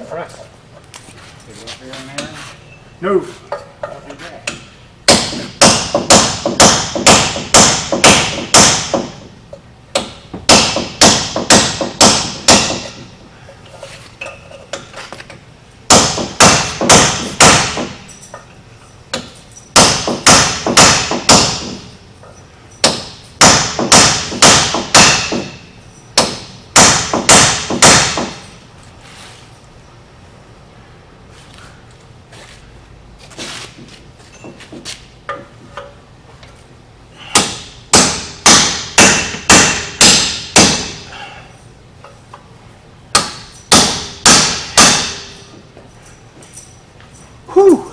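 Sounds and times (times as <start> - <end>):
hammer striking metal hub: 3.5 - 13.1, 15.9 - 28.5, 37.3 - 41.1, 43.1 - 45.6.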